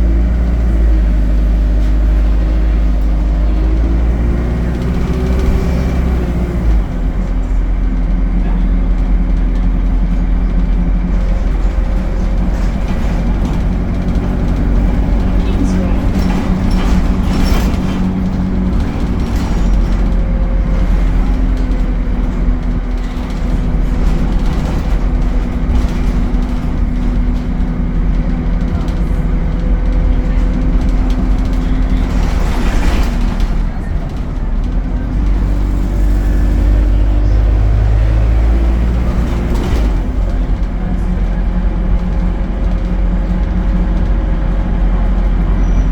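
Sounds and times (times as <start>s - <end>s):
bus engine drone: 0.0s - 45.9s.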